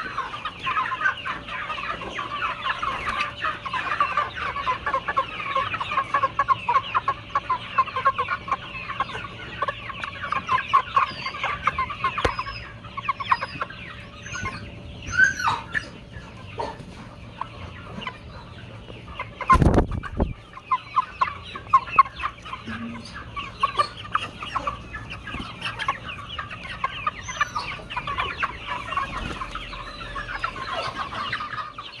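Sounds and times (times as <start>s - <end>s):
chickens clucking: 0.0s - 32.0s.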